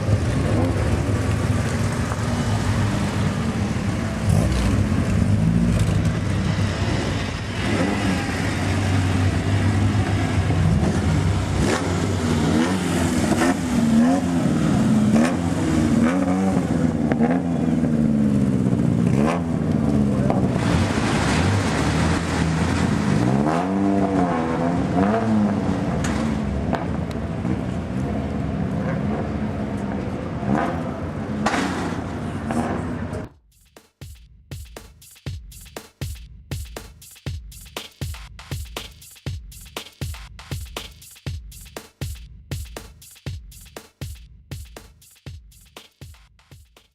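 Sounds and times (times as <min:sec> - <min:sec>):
race car engines accelerating: 0:00.0 - 0:33.3.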